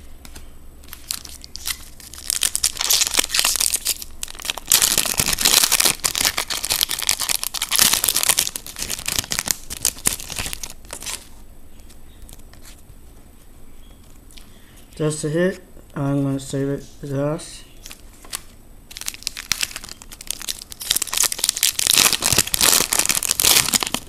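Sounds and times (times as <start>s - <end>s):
foil wrapper tearing and crinkling: 0.9s - 11.3s, 18.9s - 24.0s.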